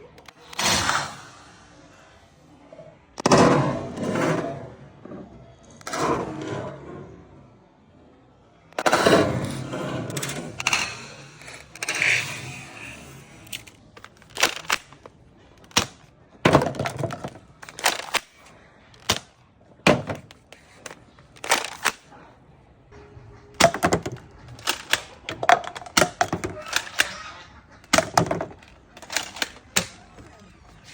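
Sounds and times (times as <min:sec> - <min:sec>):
toy revolver plastic snaps and clicks: 0:08.7 - 0:16.1, 0:16.8 - 0:19.4, 0:20.2 - 0:22.1, 0:23.6 - 0:30.9.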